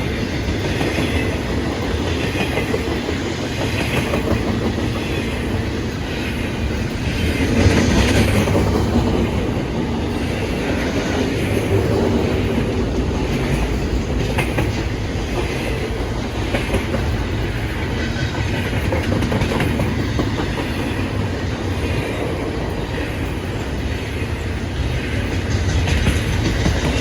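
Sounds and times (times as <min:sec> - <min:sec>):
train rumbling by: 0:00.0 - 0:27.0.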